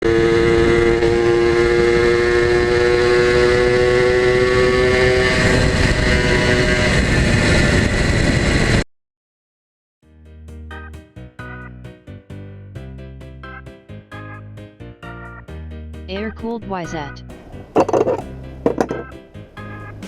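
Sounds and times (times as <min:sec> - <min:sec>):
music: 0:10.0 - 0:20.0.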